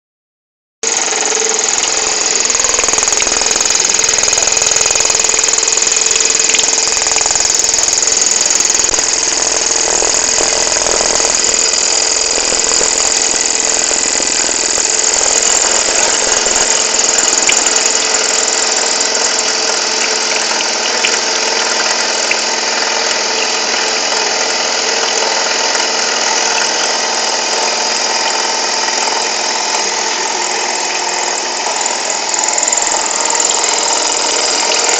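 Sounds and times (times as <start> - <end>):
cnc machine cutting steel: 0.8 - 34.9.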